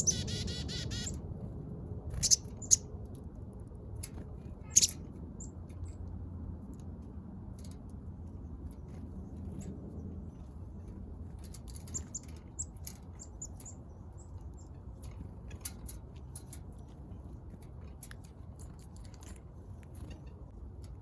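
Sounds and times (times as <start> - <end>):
birds chirping: 0.0 - 1.2, 2.1 - 2.9, 4.5 - 5.6, 11.8 - 15.6
low background rumble: 0.0 - 21.0.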